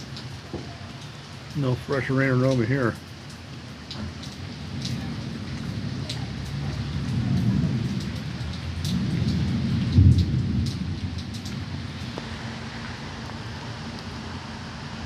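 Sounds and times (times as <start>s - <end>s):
rain falling: 0.0s - 15.0s
low rumbles: 3.9s - 15.0s.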